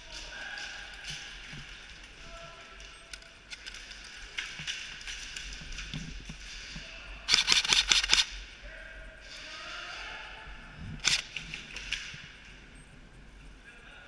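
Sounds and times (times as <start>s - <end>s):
airsoft gun rapid burst: 7.3s - 8.3s, 11.0s - 11.3s
faint scattered shots: 7.3s - 8.4s.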